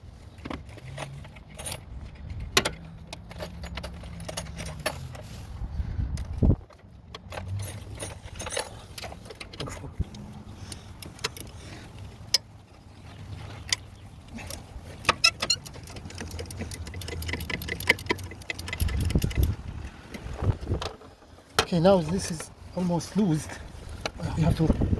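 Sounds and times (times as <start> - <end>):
hand tools clinking on metal: 0.6 - 5.4, 7.2 - 9.9, 13.4 - 19.6
ratchet wrench clicking: 15.1 - 19.6.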